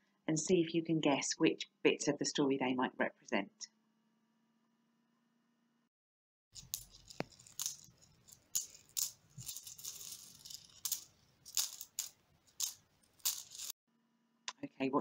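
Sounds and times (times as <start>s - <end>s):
coins jingling: 6.6s - 13.7s.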